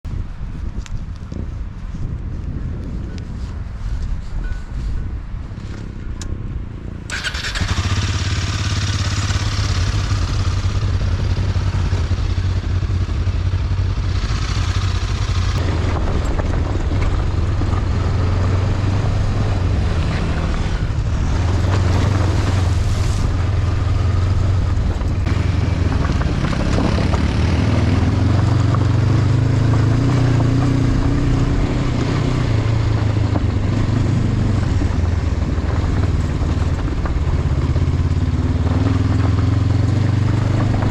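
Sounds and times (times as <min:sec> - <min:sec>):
motorcycle engine running: 0:05.6 - 0:40.9
wind noise hissing: 0:20.3 - 0:27.2.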